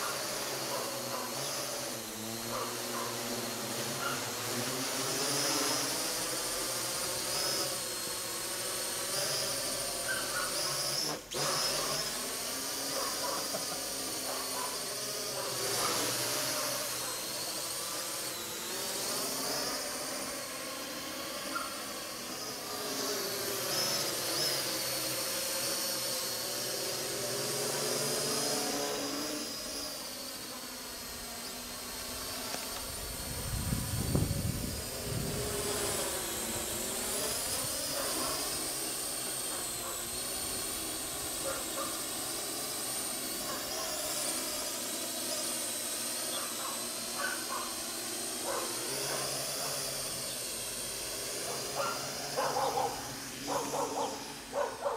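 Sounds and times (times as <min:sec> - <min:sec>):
drone rotors whining: 0:00.0 - 0:54.9.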